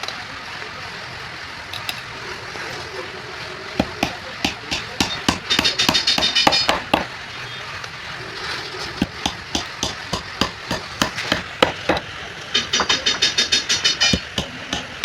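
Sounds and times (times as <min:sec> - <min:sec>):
hammer driving nails into wood: 0:03.8 - 0:07.1, 0:09.0 - 0:15.0.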